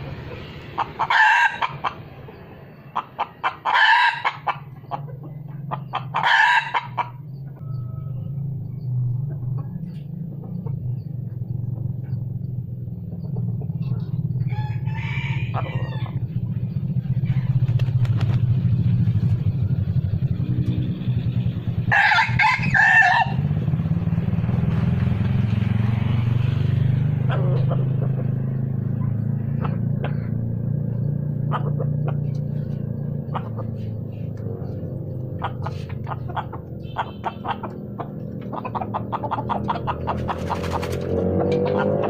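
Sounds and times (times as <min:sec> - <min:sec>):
rooster crowing: 0:01.0 - 0:01.8, 0:03.6 - 0:04.5, 0:06.2 - 0:08.4, 0:14.4 - 0:16.3, 0:21.8 - 0:23.5
steady low hum: 0:07.1 - 0:41.4.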